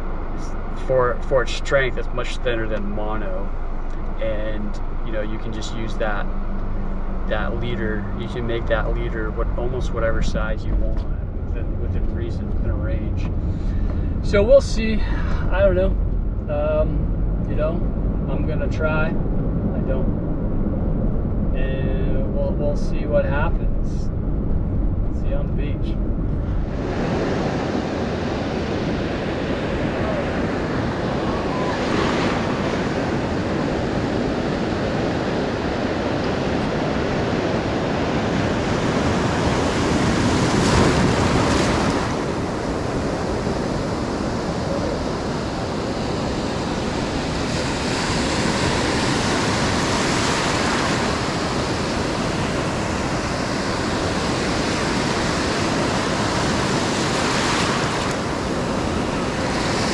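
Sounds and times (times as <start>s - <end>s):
surf breaking on sandy beach: 26.5s - 59.9s.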